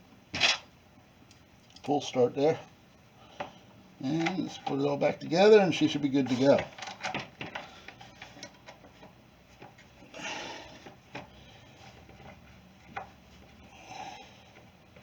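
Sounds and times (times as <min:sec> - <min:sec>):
scraping rustle: 0:04.0 - 0:10.0
plastic parts clicking and knocking: 0:04.1 - 0:04.8, 0:06.3 - 0:09.8.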